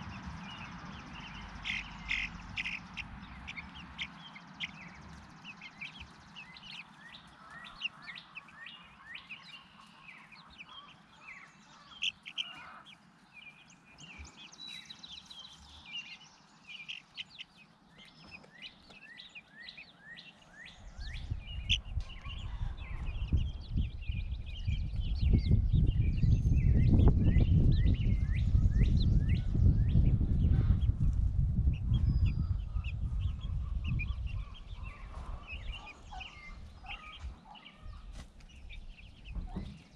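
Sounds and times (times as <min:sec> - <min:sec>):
loud low rumble: 0:00.0 - 0:04.0
birds chirping: 0:00.0 - 0:39.9.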